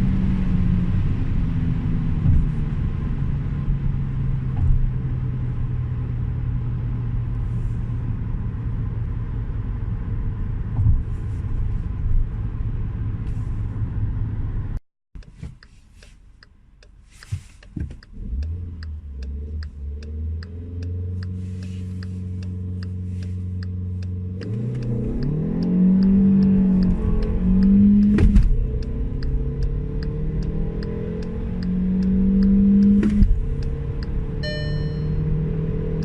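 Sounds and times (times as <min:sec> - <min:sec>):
road rumble: 0:00.0 - 0:36.0
turn indicator ticking: 0:15.2 - 0:36.0
car engine running: 0:17.4 - 0:36.0.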